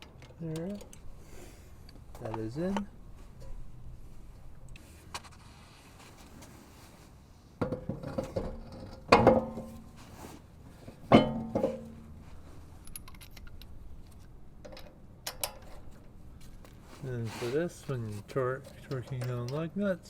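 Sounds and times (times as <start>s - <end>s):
metal car parts clanking: 7.6s - 9.9s, 10.8s - 16.2s.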